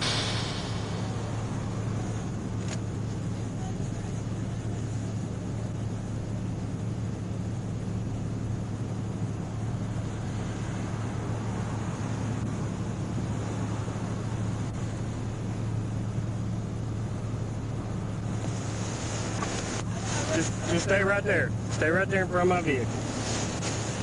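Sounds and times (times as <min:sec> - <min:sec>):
even rushing noise: 0:00.0 - 0:02.7
vehicle engine idling: 0:00.0 - 0:24.0.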